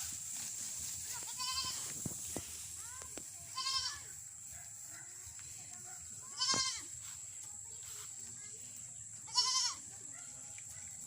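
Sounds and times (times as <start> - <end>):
goat bleating: 1.2 - 1.9, 3.5 - 4.2, 6.3 - 7.0, 9.2 - 9.9.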